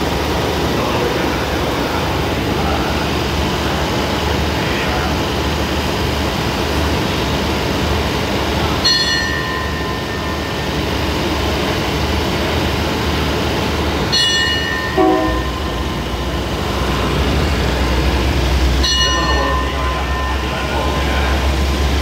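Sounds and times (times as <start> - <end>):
diesel train idling hum: 0.0 - 22.0
high-pitched signal blasts: 14.9 - 16.3
low train horn toot: 15.0 - 16.1.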